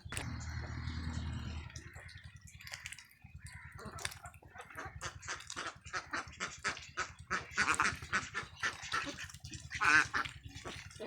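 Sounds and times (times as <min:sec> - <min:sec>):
steady low hum: 0:00.0 - 0:02.8
flock of ducks quacking: 0:00.0 - 0:11.0.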